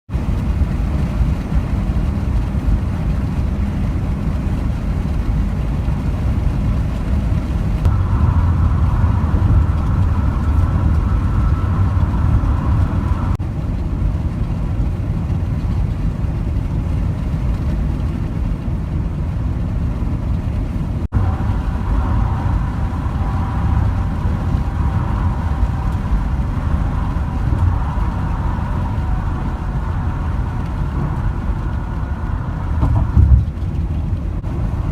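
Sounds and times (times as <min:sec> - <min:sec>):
vehicle rumbling along a road: 0:00.1 - 0:34.9
faint whine: 0:00.3 - 0:34.9.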